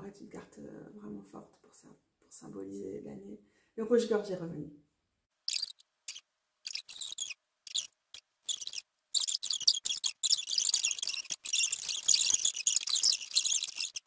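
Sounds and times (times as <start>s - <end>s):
songbird singing: 5.5s - 14.0s.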